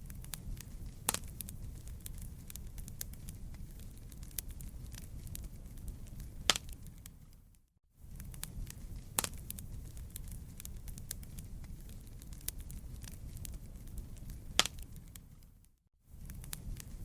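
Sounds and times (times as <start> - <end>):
loud fire pops: 0.0 - 7.4, 8.1 - 15.5, 16.2 - 17.0
campfire crackling: 0.0 - 17.0.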